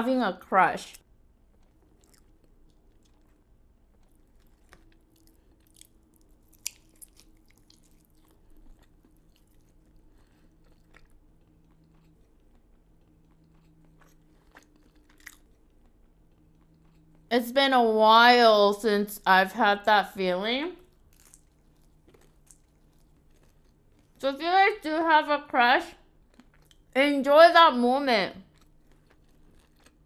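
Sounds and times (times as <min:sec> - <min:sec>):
chewing and biting food: 0:00.8 - 0:17.3, 0:20.8 - 0:24.2, 0:26.1 - 0:27.0, 0:28.4 - 0:30.0.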